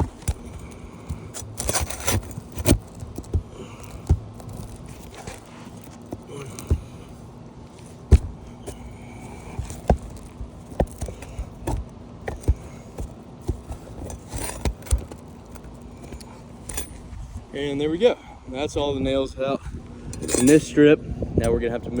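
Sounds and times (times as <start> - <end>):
flat bar prying nails: 0.0 - 7.1, 8.1 - 17.0.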